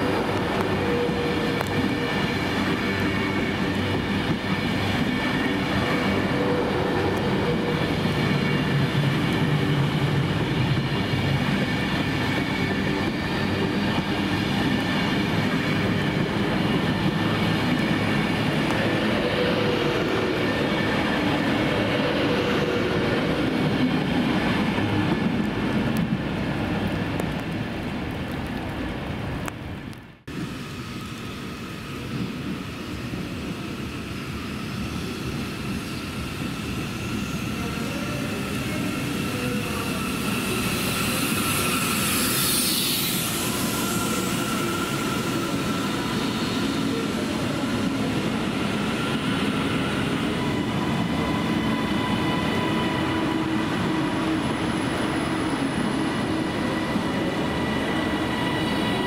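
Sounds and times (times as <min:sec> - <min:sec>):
train whining tones: 0:00.0 - 0:26.1, 0:30.3 - 0:59.0
train running noise: 0:00.0 - 0:59.0.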